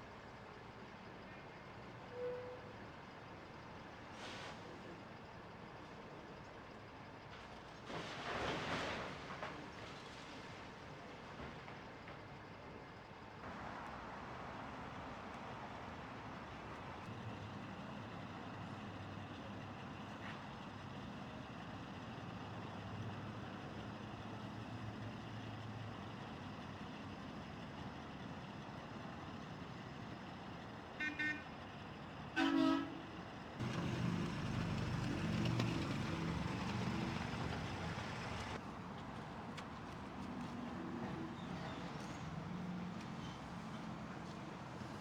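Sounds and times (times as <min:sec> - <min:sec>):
diesel engines running: 0:13.5 - 0:45.0
vehicle horn toots: 0:31.0 - 0:31.4, 0:32.4 - 0:33.0.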